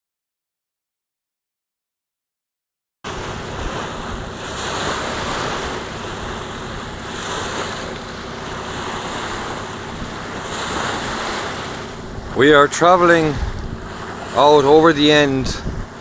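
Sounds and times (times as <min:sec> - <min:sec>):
water rushing past boat hull: 0:03.1 - 0:16.0
wind buffeting microphone: 0:03.1 - 0:16.0.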